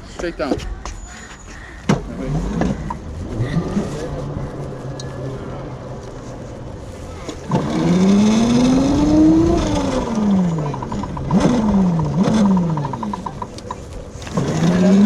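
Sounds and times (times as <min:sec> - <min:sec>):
electric motor whining: 0:14.2 - 0:15.0.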